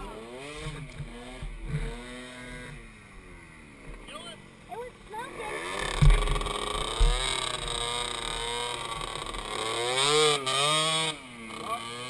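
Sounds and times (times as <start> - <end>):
atv engine revving: 0.0 - 12.0
low knock: 6.0 - 7.2.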